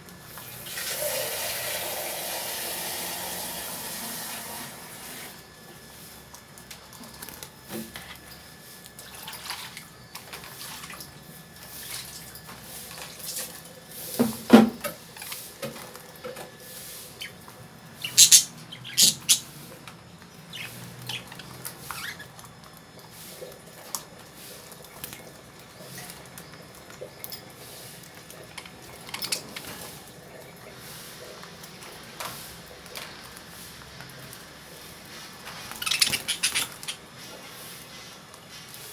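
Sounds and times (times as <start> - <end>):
birds shelling seeds: 16.6 - 22.3, 31.7 - 38.9
high-pitched bird sounds: 18.0 - 19.5, 20.5 - 22.3, 35.6 - 37.0.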